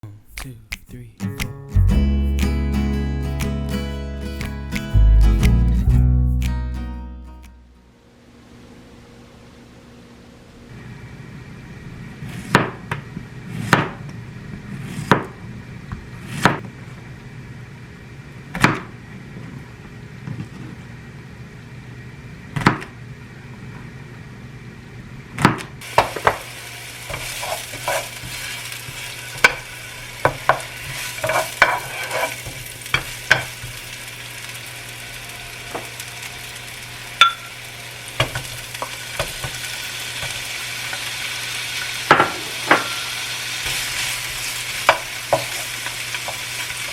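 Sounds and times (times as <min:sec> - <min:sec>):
food sizzling in a pan: 0:25.8 - 0:46.9.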